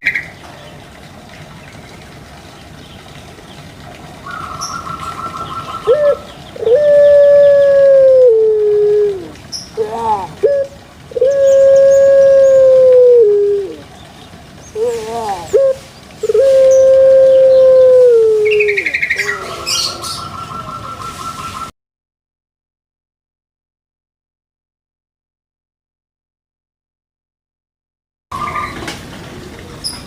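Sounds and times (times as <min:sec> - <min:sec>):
animal calling: 0:04.2 - 0:21.7.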